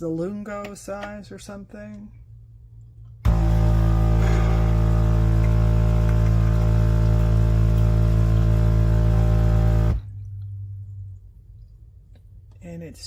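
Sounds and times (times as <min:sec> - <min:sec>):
espresso machine pump humming: 0:03.3 - 0:10.0.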